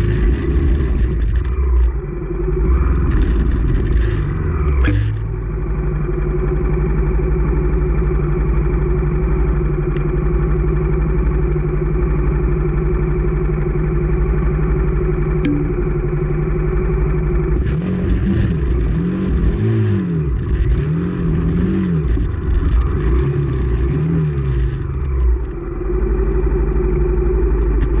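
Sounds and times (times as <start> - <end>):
motorcycle engine revving: 0.0 - 7.5, 13.4 - 26.4.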